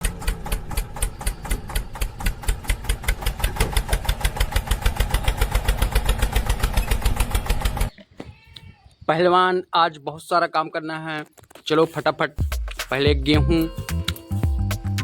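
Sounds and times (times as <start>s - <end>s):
tractor engine chugging: 0.0s - 7.9s.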